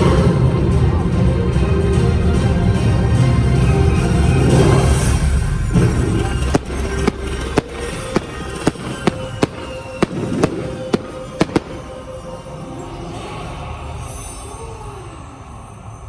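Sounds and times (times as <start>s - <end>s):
fireworks bangs: 5.8s - 12.9s
show music: 6.4s - 12.5s.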